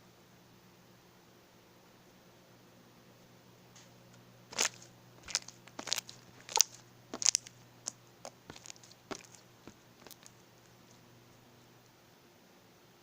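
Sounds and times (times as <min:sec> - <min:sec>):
slime popping and crackling: 0:04.5 - 0:10.4.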